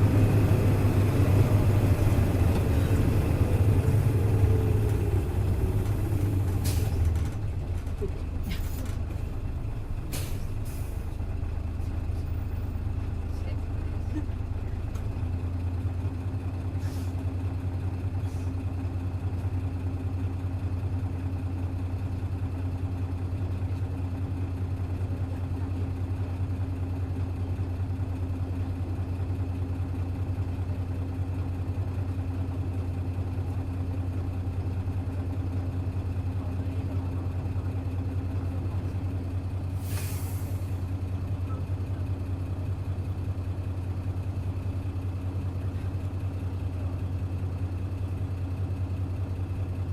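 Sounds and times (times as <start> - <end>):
bus diesel engine idling: 0.0 - 49.9
short hiss: 39.8 - 40.8.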